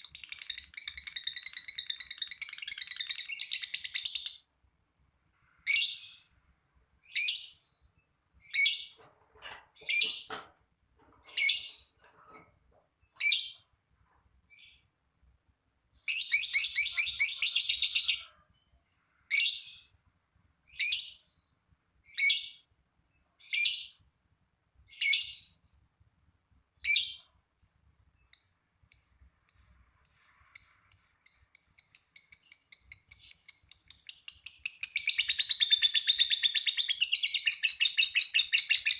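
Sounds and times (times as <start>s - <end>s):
lovebird chirping and trilling: 0.0s - 4.5s, 5.6s - 6.3s, 7.0s - 9.0s, 9.8s - 10.3s, 11.2s - 12.0s, 13.1s - 13.7s, 14.5s - 14.9s, 16.0s - 18.4s, 19.3s - 20.0s, 20.7s - 22.7s, 23.4s - 24.0s, 24.9s - 25.8s, 26.8s - 38.9s.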